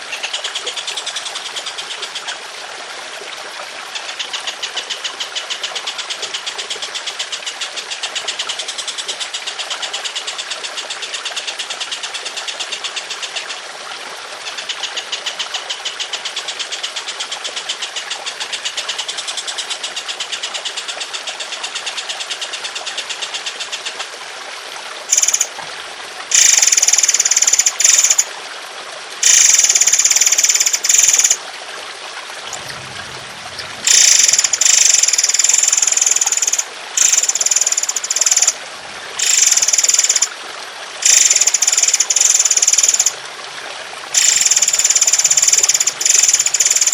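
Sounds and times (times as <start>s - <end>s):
trickling water: 0.0s - 46.9s
songbird rattling song: 25.1s - 25.5s, 26.3s - 28.3s, 29.2s - 31.4s, 32.5s - 38.6s, 39.2s - 40.3s, 41.0s - 43.2s, 44.2s - 46.9s.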